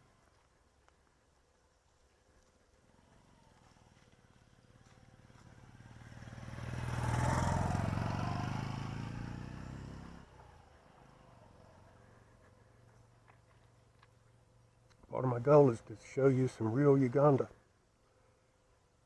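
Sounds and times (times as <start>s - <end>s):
motorcycle passing: 2.7s - 13.3s.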